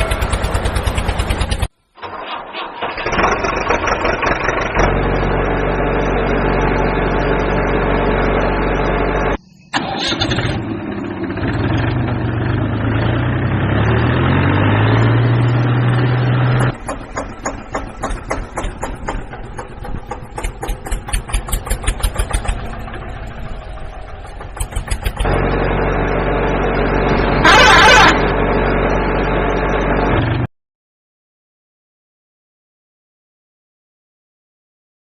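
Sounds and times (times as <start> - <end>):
loud burst of noise: 0.0 - 12.9, 16.6 - 30.4
tractor engine running: 0.0 - 30.5.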